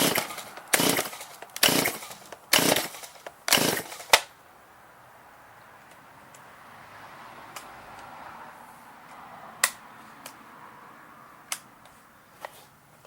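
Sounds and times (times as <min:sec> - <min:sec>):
chainsaw recoil starter pulls: 0:00.0 - 0:04.3.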